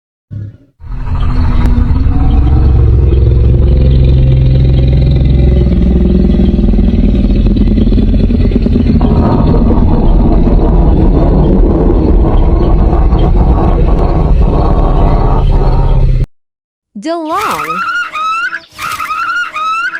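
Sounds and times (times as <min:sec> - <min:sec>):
low rumbling growl: 0:00.3 - 0:16.3.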